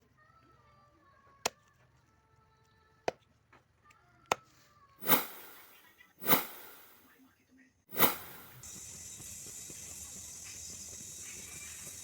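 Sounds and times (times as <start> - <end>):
loud burst of hiss: 5.0 - 7.0, 7.9 - 12.0.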